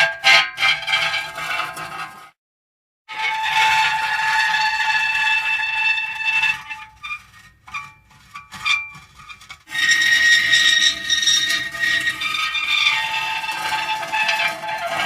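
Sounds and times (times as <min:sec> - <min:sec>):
metal squealing: 0:00.2 - 0:02.2, 0:03.1 - 0:15.0
short metal squeaks: 0:06.2 - 0:15.0.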